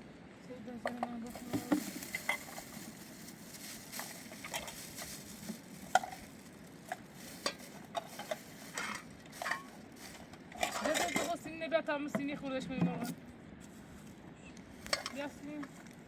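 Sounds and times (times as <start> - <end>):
faint steady sizzle: 1.3 - 10.6.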